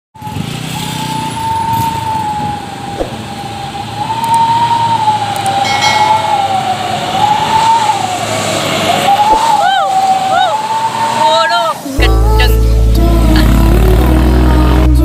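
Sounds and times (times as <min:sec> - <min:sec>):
siren-like wailing tone: 0:00.2 - 0:11.7
low rumble: 0:12.0 - 0:15.0.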